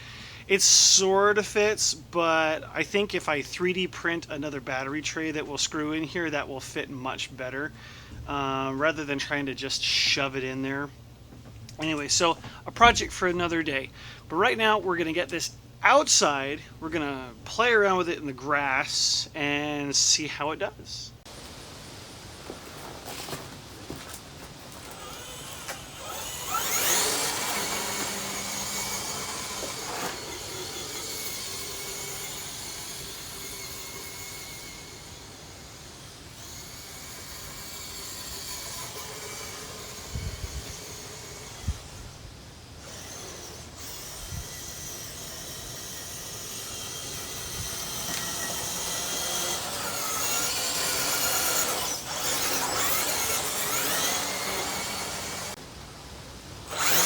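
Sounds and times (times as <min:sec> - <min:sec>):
electric motor whining: 0:22.7 - 0:55.6, 0:56.7 - 0:57.0.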